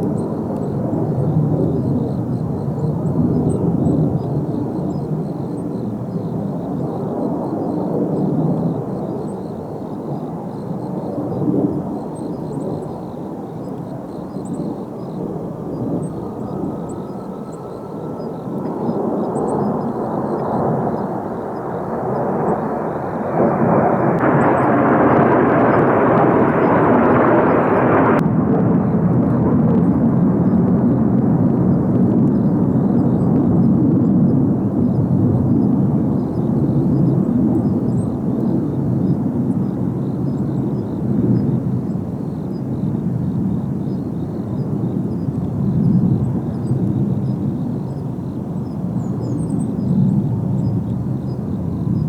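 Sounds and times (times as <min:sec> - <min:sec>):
jet aircraft flying past: 0:00.0 - 0:52.0.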